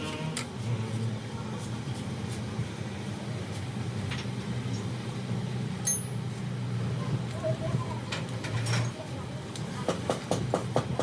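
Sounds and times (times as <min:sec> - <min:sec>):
metallic clink: 0:05.8 - 0:06.2.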